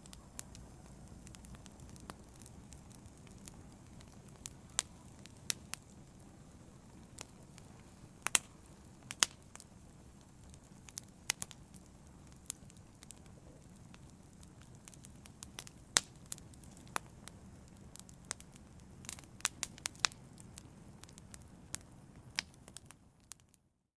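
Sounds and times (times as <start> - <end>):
wood fire crackling: 0.0 - 23.6
soft steady hiss: 0.0 - 24.0
sharp pops and snaps: 8.2 - 9.4.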